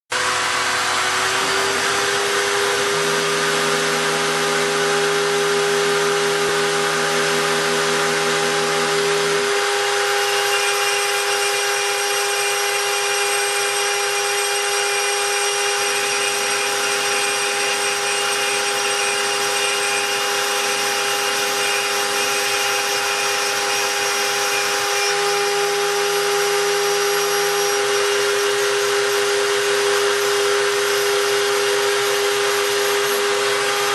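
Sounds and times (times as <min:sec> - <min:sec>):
milling spindle whine: 0:00.1 - 0:33.9.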